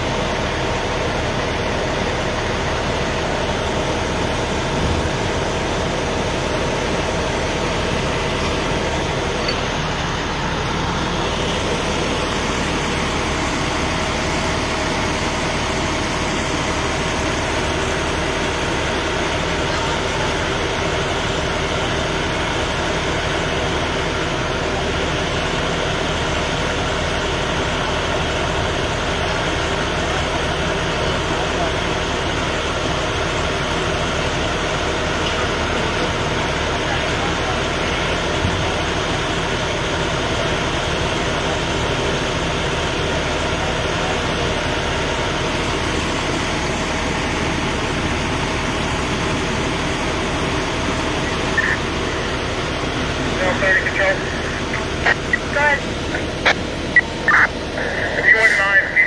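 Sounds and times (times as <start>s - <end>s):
heavy vehicle engine idling: 0.0s - 59.0s.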